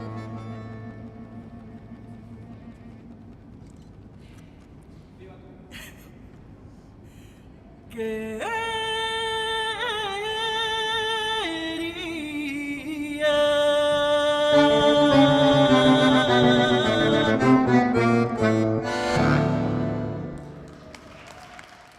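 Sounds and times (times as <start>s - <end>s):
accordion playing folk song: 0.0s - 2.9s, 14.5s - 20.7s.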